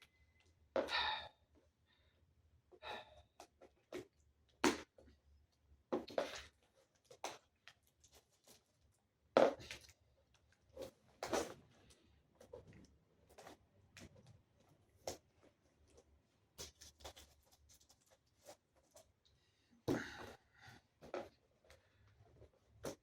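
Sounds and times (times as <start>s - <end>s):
person breathing with effort: 0.8s - 2.2s, 2.8s - 3.3s, 19.5s - 21.0s.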